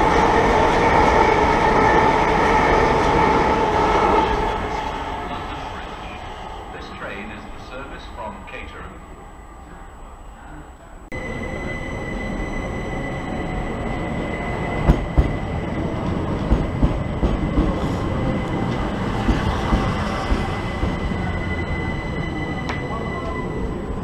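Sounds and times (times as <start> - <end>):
high-pitched train whine: 0.0 - 24.0
train wheels rumbling on rail: 0.0 - 24.0
train wheel clacks: 14.8 - 21.0.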